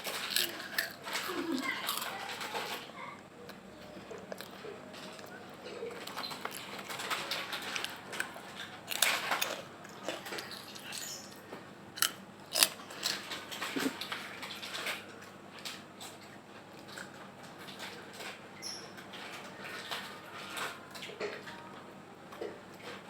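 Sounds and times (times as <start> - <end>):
chewing crispy snack: 0.0 - 18.4.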